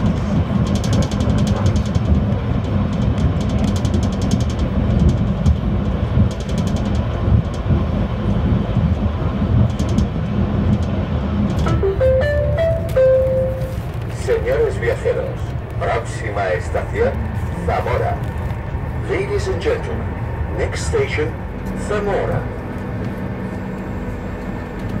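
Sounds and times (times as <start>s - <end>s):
train rumbling at speed: 0.0s - 25.0s
held tones: 11.6s - 13.8s
electronic background music: 11.7s - 13.6s.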